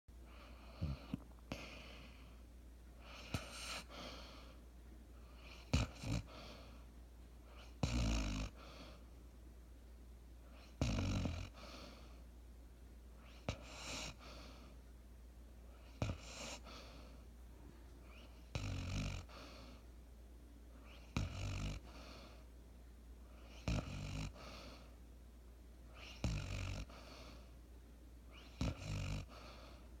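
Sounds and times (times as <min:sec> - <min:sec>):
dog snoring: 0:00.3 - 0:02.3, 0:03.0 - 0:04.6, 0:05.2 - 0:06.8, 0:07.5 - 0:09.0, 0:10.5 - 0:12.2, 0:13.2 - 0:14.7, 0:15.8 - 0:17.2, 0:18.0 - 0:19.8, 0:20.8 - 0:22.4, 0:23.3 - 0:24.9, 0:25.9 - 0:27.5, 0:28.3 - 0:29.8.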